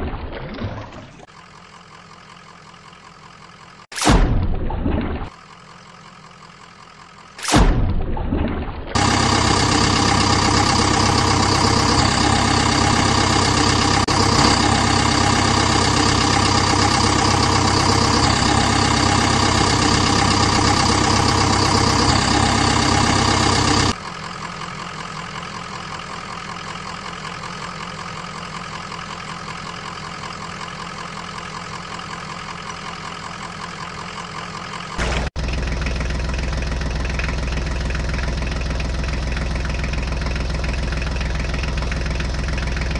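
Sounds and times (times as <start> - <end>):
vehicle engine idling: 1.2 - 3.9, 5.3 - 7.4, 9.0 - 42.9.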